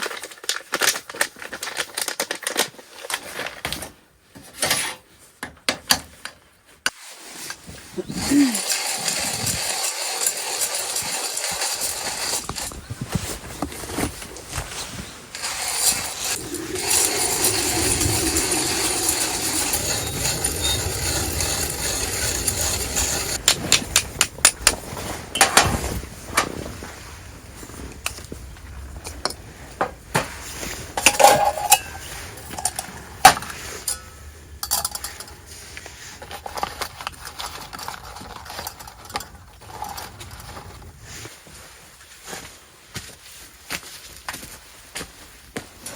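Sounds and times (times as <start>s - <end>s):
cooking gear clinking: 31.0s - 33.0s.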